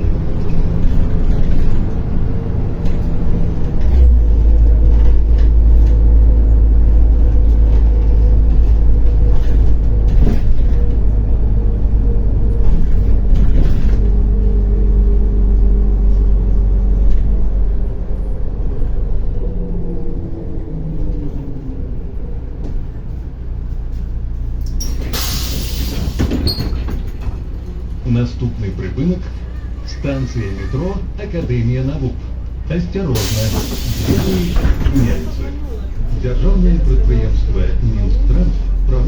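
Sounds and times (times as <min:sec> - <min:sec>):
bus diesel engine rumbling: 0:00.0 - 0:39.0.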